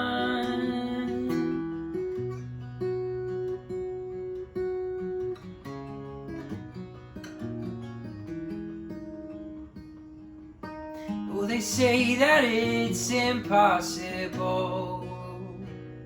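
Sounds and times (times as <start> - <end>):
person singing worship song: 0.0 - 1.4
acoustic guitar playing: 0.0 - 16.0.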